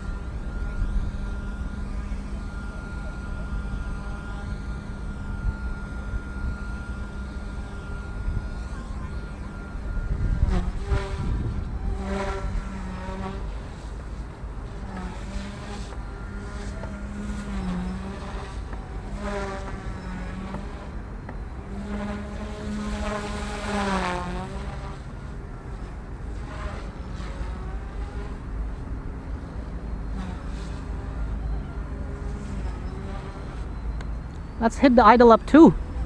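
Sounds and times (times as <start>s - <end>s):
wind buffeting microphone: 0.0s - 23.8s
rc helicopter rotor whine: 0.0s - 36.0s.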